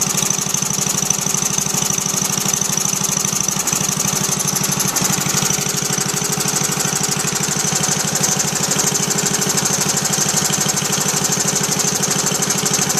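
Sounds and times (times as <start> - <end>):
small gas engine running: 0.0 - 12.9.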